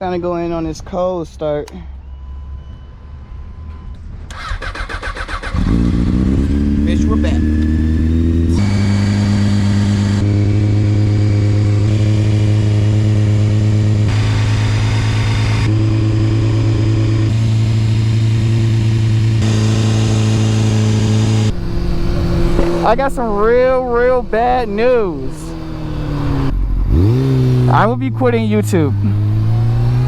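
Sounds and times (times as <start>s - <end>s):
motorcycle engine idling: 21.5s - 23.6s.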